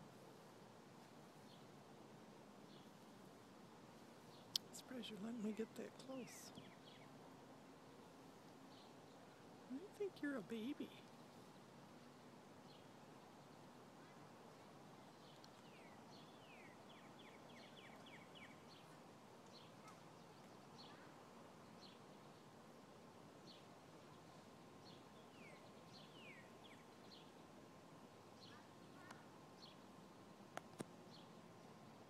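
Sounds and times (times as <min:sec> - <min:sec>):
outdoor hiss: 0:00.0 - 0:32.0
small birds chirping: 0:04.1 - 0:27.4, 0:28.2 - 0:31.8.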